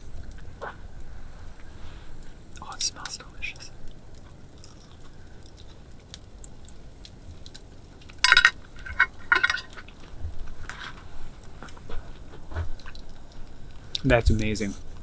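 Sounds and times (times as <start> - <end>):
eating clinks and crunches: 2.6 - 6.8, 7.4 - 10.6.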